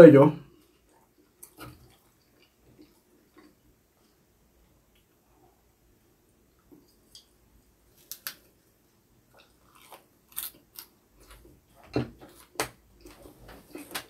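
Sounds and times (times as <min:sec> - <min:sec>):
crisp crunching while chewing: 0:09.3 - 0:11.4.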